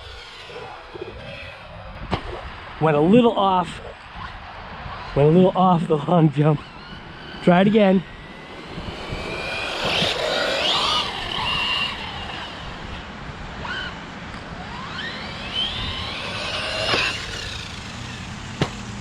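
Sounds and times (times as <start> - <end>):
rc car motor whining: 0.0 - 1.9, 4.2 - 19.0
rc car landing knocks: 16.0 - 17.9.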